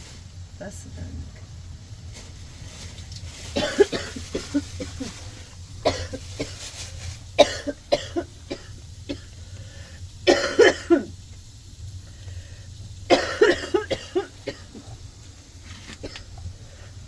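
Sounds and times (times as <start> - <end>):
woman coughing: 3.6 - 5.2, 5.8 - 6.6, 7.4 - 9.3, 10.3 - 11.1, 13.1 - 14.8.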